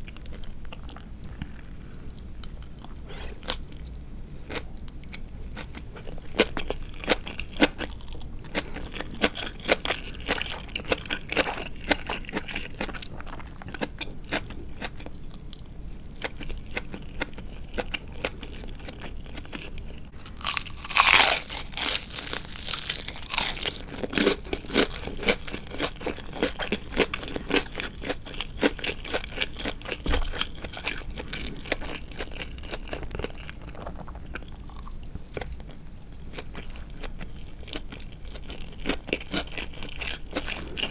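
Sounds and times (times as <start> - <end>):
crunchy chewing of fried chicken: 0.0 - 40.9.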